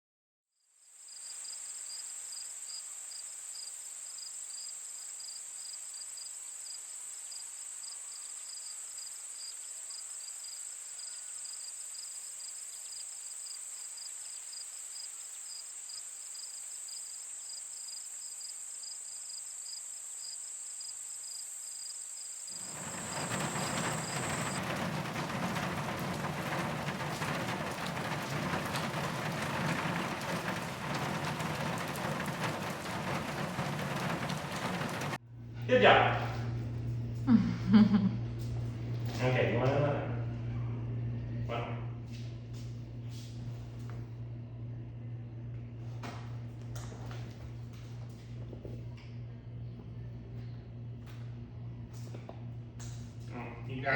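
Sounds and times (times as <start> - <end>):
insects chirring: 0.8 - 35.2
rain hissing: 22.5 - 35.2.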